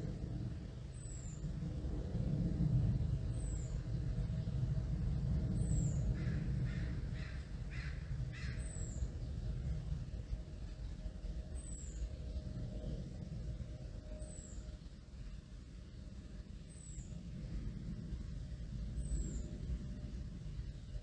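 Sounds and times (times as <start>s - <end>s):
aircraft passing overhead: 0.0s - 21.0s
crow cawing: 6.2s - 8.6s.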